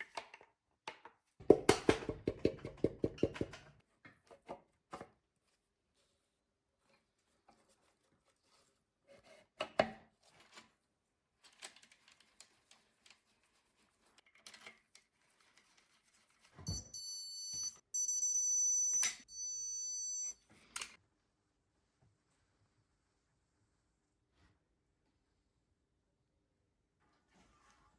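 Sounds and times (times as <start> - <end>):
shrill electronic tone: 16.7 - 20.4.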